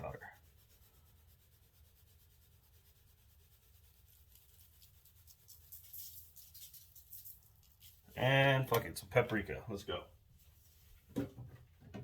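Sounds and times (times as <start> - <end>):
spice shaker shaking: 0.0 - 8.2.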